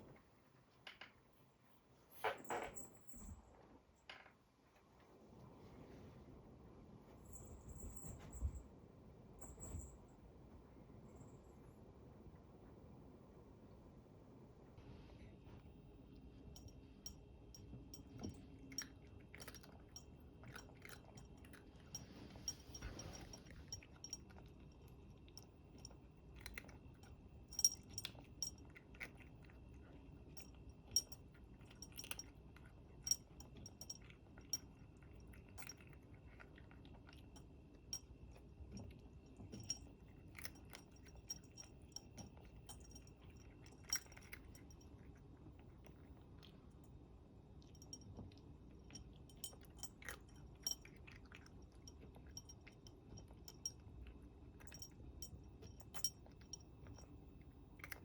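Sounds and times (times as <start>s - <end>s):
pet chewing crunchy food: 17.7s - 46.9s, 47.6s - 58.0s.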